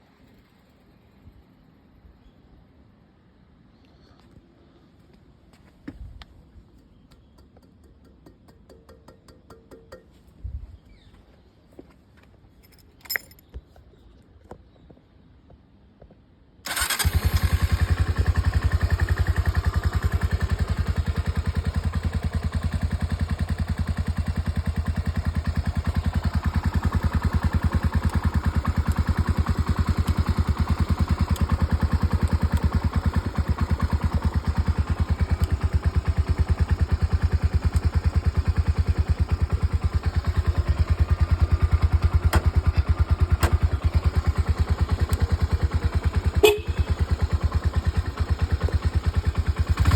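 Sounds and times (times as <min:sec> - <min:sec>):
motorcycle engine starting and idling: 0:16.6 - 0:49.9.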